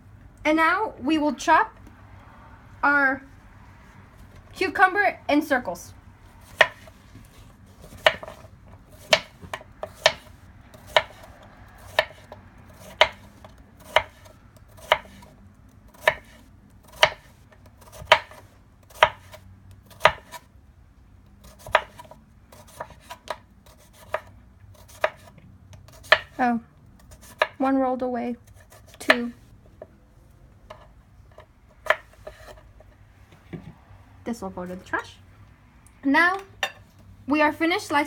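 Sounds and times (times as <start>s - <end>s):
knife chopping on cutting board: 6.4s - 7.0s, 7.8s - 15.3s, 15.9s - 20.4s, 21.4s - 26.4s, 27.0s - 27.6s, 28.5s - 29.4s, 30.7s - 32.6s.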